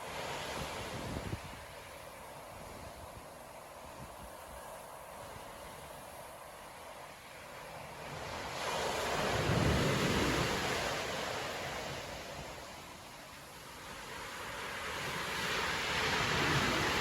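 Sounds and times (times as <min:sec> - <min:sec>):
waves crashing: 0:00.0 - 0:17.0
wind buffeting microphone: 0:00.2 - 0:06.4, 0:08.0 - 0:12.8.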